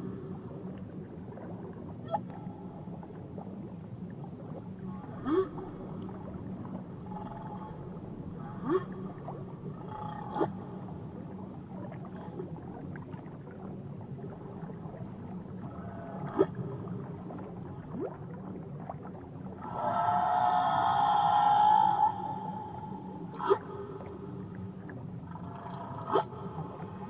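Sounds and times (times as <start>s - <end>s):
low underwater rumble: 0.0s - 27.0s
whale calls underwater: 2.0s - 3.2s, 4.4s - 12.8s, 15.6s - 24.6s, 25.3s - 27.0s.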